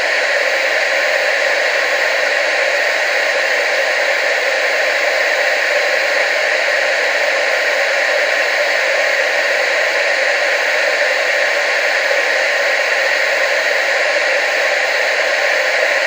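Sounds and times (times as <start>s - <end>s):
television static hiss: 0.0s - 16.0s.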